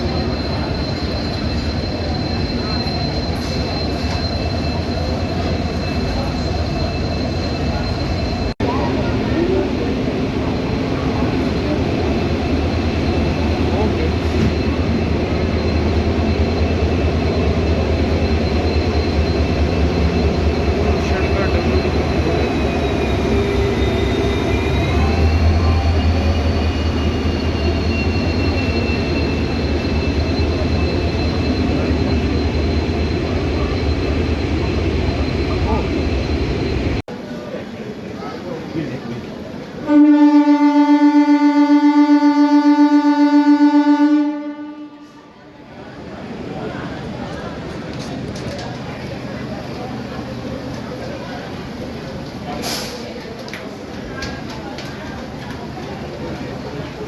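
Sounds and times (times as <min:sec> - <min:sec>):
train horn long note: 0:39.8 - 0:45.4.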